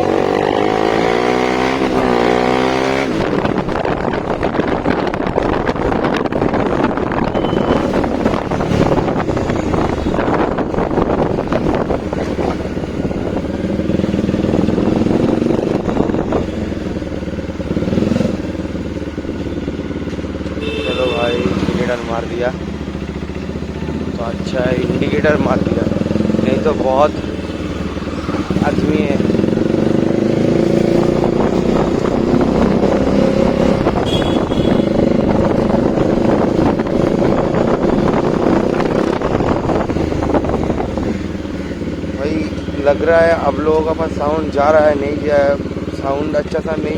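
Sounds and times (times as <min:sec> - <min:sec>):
wind on microphone: 0:00.0 - 0:18.7, 0:25.8 - 0:41.8
motorcycle engine running: 0:00.0 - 0:46.9.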